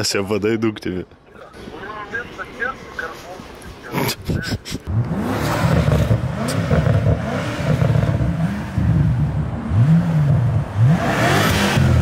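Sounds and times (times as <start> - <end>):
car engine revving in blips: 4.9 - 12.0.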